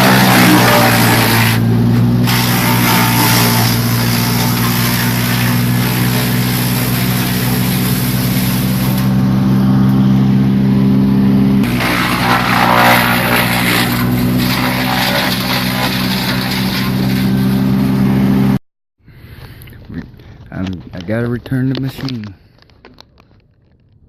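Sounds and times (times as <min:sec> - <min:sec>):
chipper grinding material: 0:00.0 - 0:18.6
wood chipper engine running: 0:00.0 - 0:18.6.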